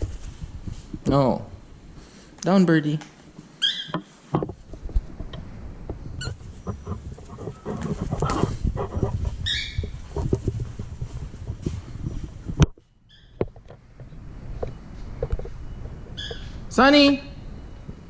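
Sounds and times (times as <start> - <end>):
low rumbling and rustling: 0.0 - 2.2, 4.3 - 16.7
pet bird chirp: 3.6 - 4.0, 9.4 - 10.0, 13.1 - 13.4, 16.1 - 16.6.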